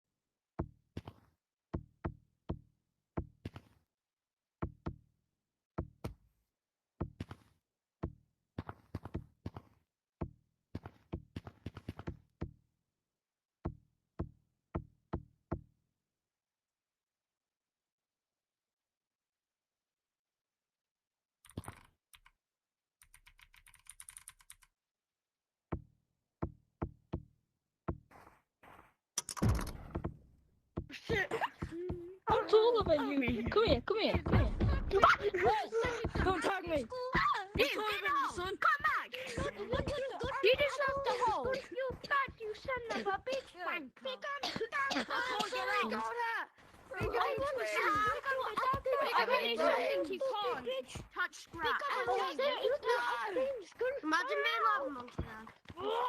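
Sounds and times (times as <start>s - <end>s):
fast run of small clicks: 23.0s - 24.7s.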